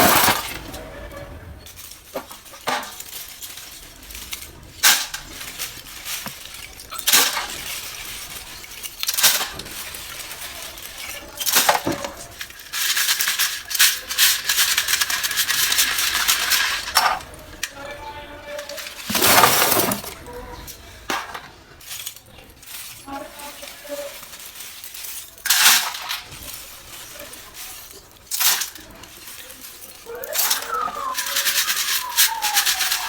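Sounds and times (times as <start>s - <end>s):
clay chunks being crunched: 18.5s - 33.0s.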